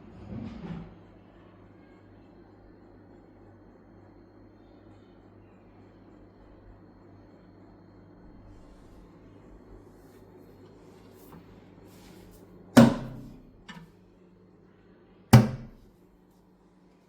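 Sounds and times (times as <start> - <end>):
cabinet doors shutting: 12.8 - 13.4, 15.4 - 15.8.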